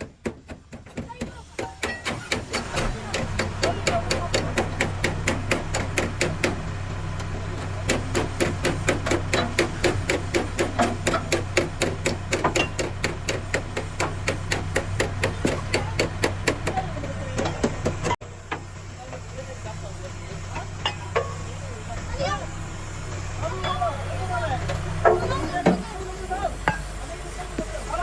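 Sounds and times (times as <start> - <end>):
hammering on metal: 0.0 - 6.8, 7.6 - 18.2.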